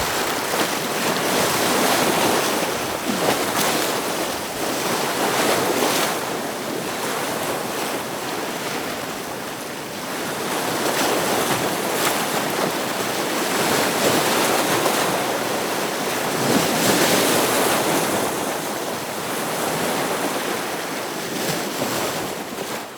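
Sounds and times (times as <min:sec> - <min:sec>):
ocean waves breaking on rocks: 0:00.0 - 0:07.9.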